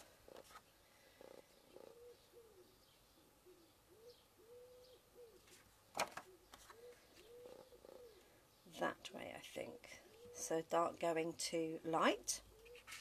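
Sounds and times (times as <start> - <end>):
bird cooing softly: 0.0 - 8.6, 9.6 - 10.6, 12.3 - 13.0.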